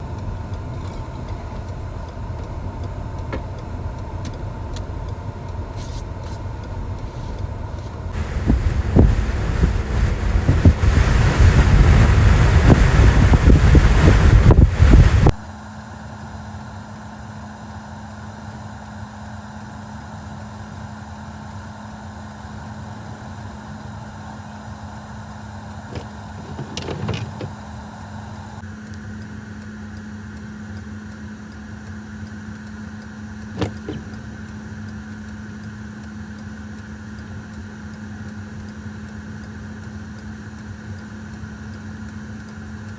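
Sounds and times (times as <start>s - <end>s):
car engine idling: 0.0s - 15.3s.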